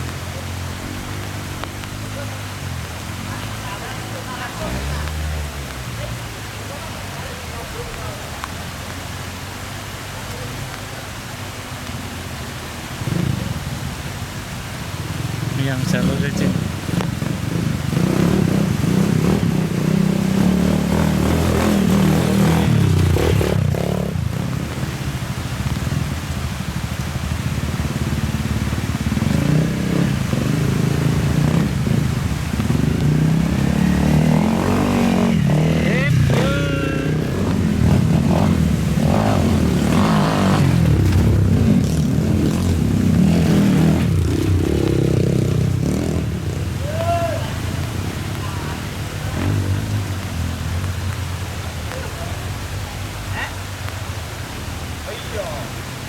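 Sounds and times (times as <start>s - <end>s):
motorcycle engine revving: 14.8s - 26.8s, 27.4s - 52.8s.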